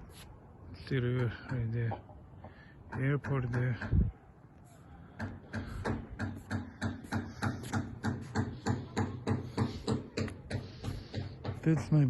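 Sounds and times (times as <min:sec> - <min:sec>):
rapid short knocks: 0:05.2 - 0:12.0.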